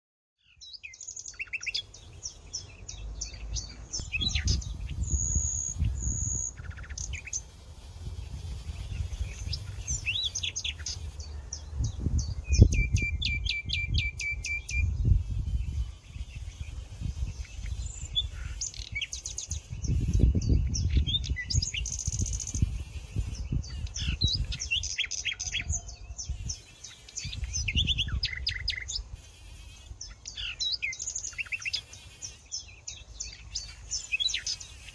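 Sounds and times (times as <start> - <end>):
songbirds chirping and singing: 0.4 - 7.6, 8.2 - 34.9.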